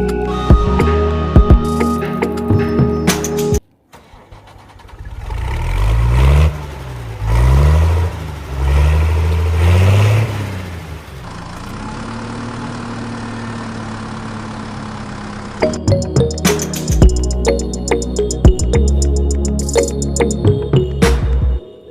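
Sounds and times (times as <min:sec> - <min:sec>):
engine revving then idling: 0:04.0 - 0:15.6.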